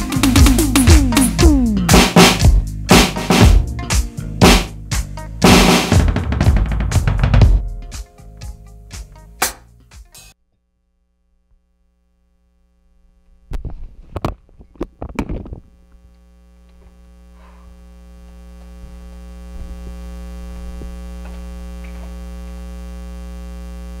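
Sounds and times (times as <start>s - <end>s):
electrical mains hum: 10.7s - 24.0s.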